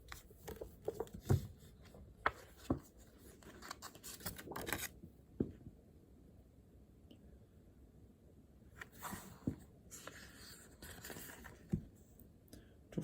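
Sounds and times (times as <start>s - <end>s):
paper rustling: 0.0s - 5.0s, 8.8s - 11.8s.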